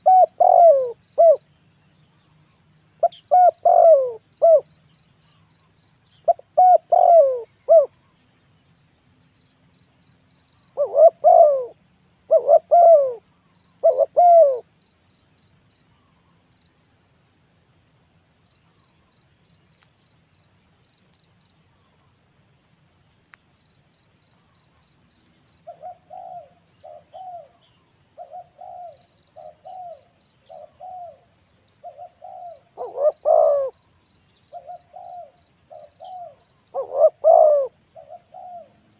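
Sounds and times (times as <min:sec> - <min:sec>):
dove cooing: 0:00.0 - 0:01.5, 0:03.0 - 0:04.7, 0:06.2 - 0:08.0, 0:10.7 - 0:14.7, 0:25.6 - 0:33.9, 0:34.5 - 0:38.9.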